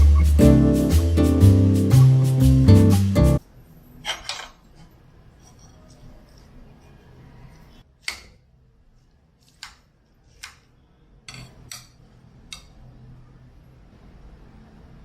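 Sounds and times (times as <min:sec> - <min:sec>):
cutlery clinking against bowl: 0:04.0 - 0:06.5, 0:11.3 - 0:12.8.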